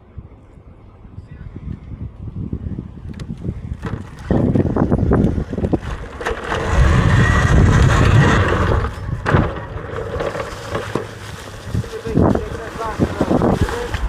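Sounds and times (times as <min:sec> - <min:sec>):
wind rushing over microphone: 0:00.9 - 0:14.0
bike rattling over rough ground: 0:03.2 - 0:14.0.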